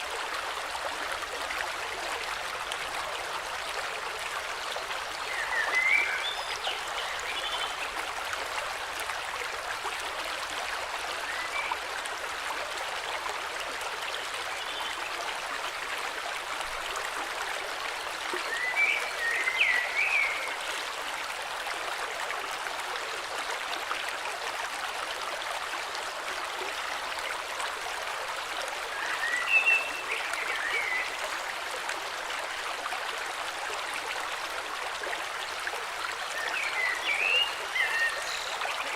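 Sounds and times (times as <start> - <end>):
stream rushing: 15.8 - 38.9.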